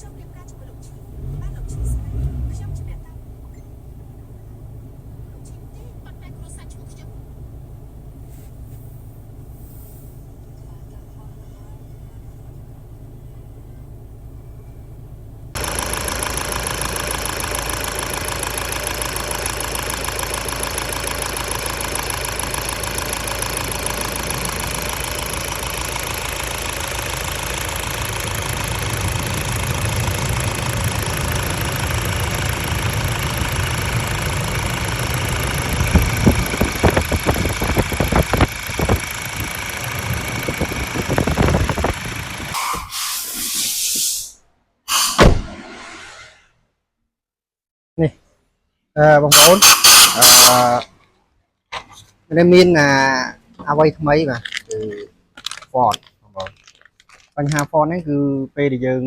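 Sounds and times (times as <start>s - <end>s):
engine idling: 0.0s - 42.7s, 49.0s - 50.9s
engine knocks and surges: 0.0s - 43.0s, 49.3s - 50.8s.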